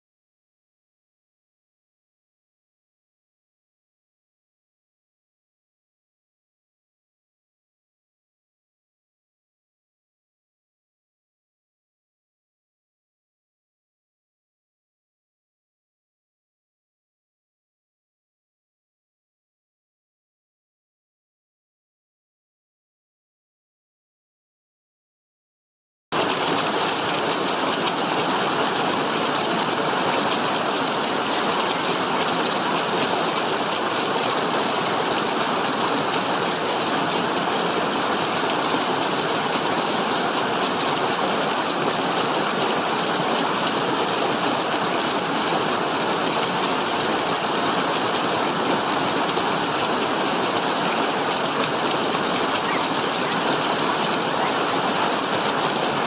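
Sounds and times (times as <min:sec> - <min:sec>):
rushing water hiss: 0:26.2 - 0:56.0.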